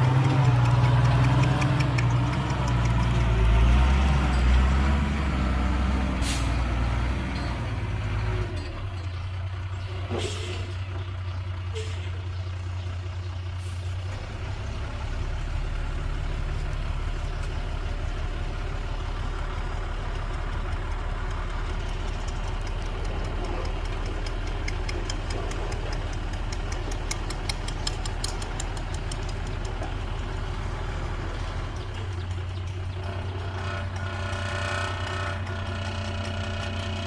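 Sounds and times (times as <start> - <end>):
fast high clicking: 0.0 - 4.2, 19.8 - 30.4
heavy diesel engine running: 0.0 - 37.0.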